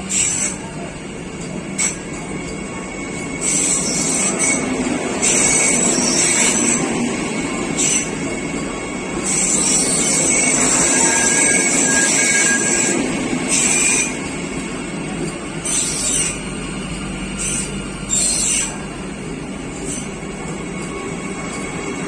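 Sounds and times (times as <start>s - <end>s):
train wheels rumbling: 0.0s - 22.0s
high-pitched squealing: 9.2s - 14.2s.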